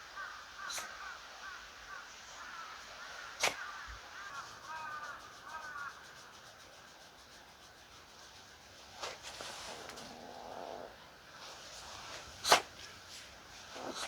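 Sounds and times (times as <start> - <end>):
distant crows cawing: 0.1 - 6.1
brief rustle: 9.0 - 10.2.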